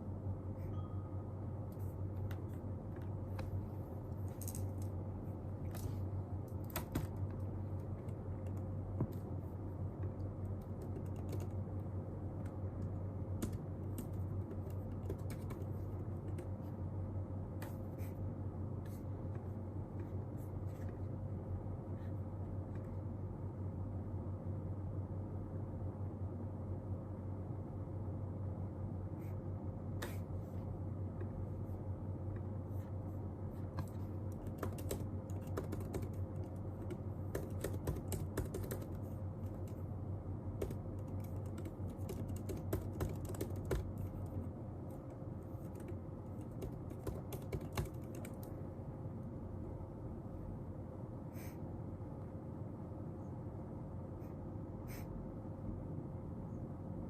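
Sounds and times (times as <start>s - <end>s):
steady low hum: 0.0s - 57.0s
keyboard keystrokes: 5.7s - 9.3s, 10.0s - 11.7s, 12.3s - 16.6s, 33.8s - 39.8s, 40.6s - 44.4s, 45.0s - 48.6s.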